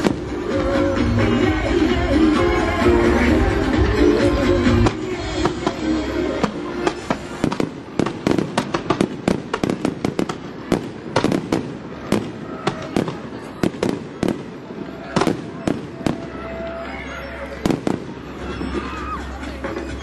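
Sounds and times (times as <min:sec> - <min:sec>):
fireworks bangs and crackles: 0:00.0 - 0:01.1, 0:04.7 - 0:20.0
music: 0:00.0 - 0:07.6, 0:15.7 - 0:20.0.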